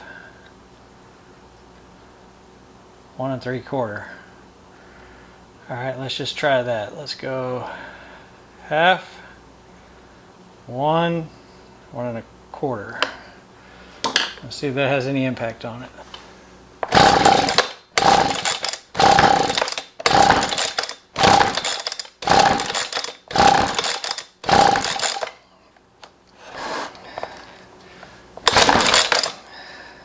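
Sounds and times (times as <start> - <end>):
recoil starter rope pulls: 16.8 - 25.4, 28.4 - 29.4.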